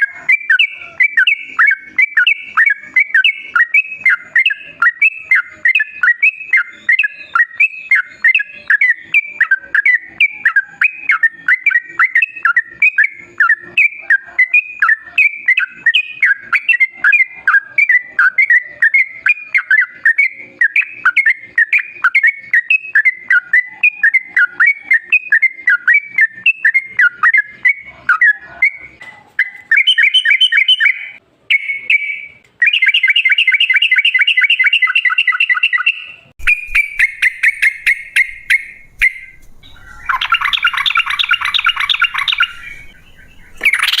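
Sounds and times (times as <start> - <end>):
bird singing bubbling chirps: 29.7 - 44.0
buzzy rattling bird trill: 36.4 - 44.0.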